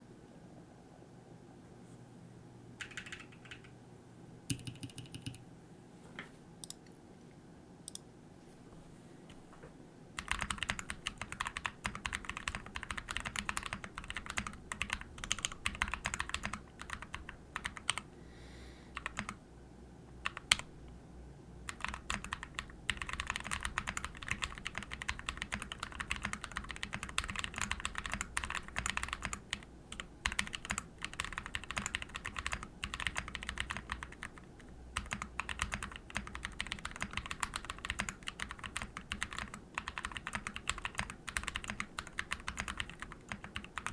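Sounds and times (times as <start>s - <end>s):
fast typing on mechanical keyboard: 2.8s - 3.7s, 4.5s - 5.4s, 10.2s - 18.0s, 19.0s - 19.4s, 20.2s - 20.7s, 21.7s - 43.9s.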